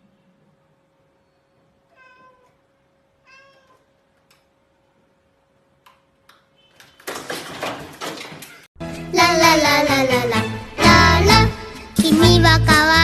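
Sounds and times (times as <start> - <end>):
cat meowing: 1.9 - 2.6, 3.2 - 3.9.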